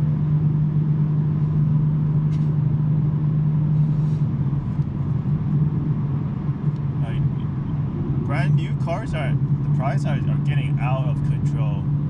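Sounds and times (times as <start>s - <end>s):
car engine and exhaust droning: 0.0s - 12.0s
road noise: 0.0s - 12.0s.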